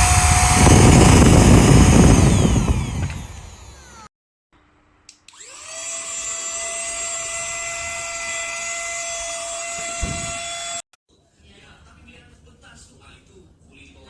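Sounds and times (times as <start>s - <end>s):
vacuum cleaner motor whining: 0.0s - 4.1s, 5.3s - 10.8s.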